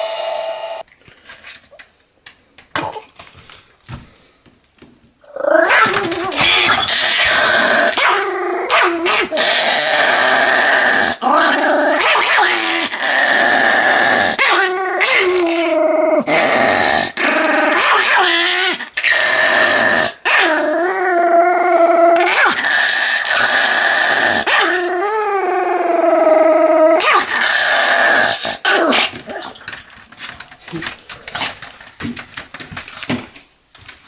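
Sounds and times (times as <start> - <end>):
dog whining: 5.3 - 17.1.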